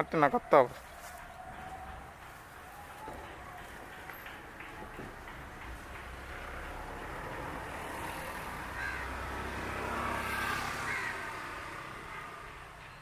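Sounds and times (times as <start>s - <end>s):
motor vehicle passing: 0.7s - 13.0s
crows cawing faintly: 6.6s - 12.4s.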